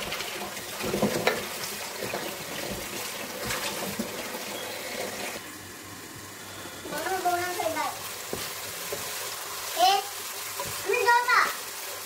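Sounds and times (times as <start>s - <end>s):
wooden spatula scraping pot: 0.0s - 5.4s, 6.9s - 10.9s
onions sizzling in oil: 0.0s - 12.0s.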